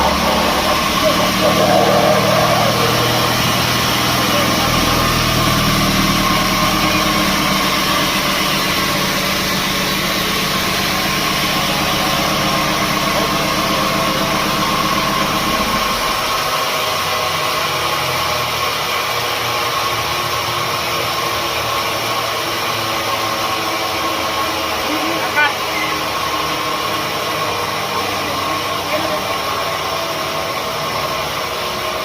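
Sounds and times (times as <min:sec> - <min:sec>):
deep low hum: 0:00.0 - 0:16.4
machinery whining tone: 0:00.0 - 0:17.7
sawmill machinery drone: 0:00.0 - 0:32.0.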